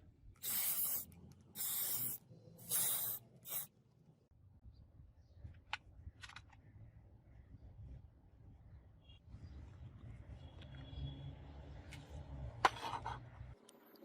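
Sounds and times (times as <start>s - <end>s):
short hissing bursts: 0.4s - 3.7s.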